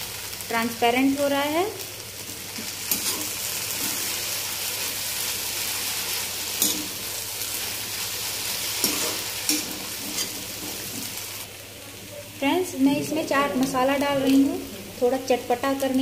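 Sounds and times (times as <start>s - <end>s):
food sizzling in pan: 0.0s - 16.0s.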